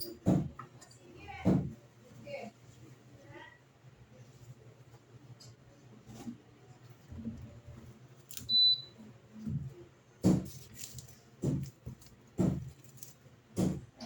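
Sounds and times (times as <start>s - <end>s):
washing machine beep: 8.4s - 9.0s.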